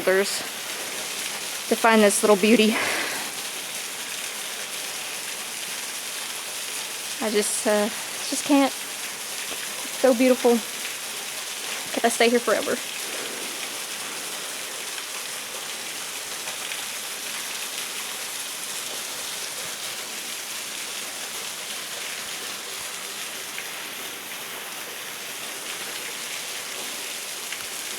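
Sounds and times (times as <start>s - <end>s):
waterfall pouring: 0.0s - 27.9s.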